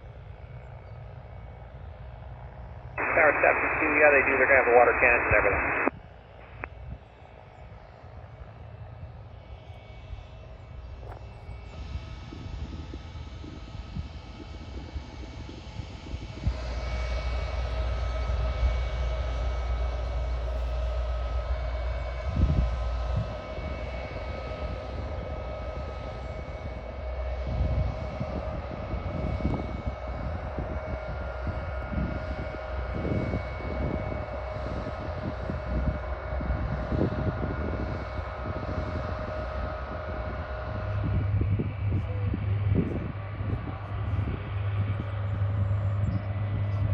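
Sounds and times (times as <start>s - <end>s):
jet engines whining: 3.0s - 6.7s.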